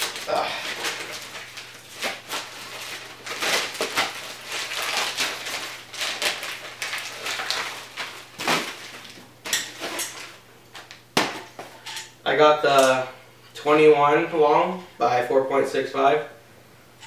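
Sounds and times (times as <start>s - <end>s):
packaging crinkling: 0.0s - 11.7s.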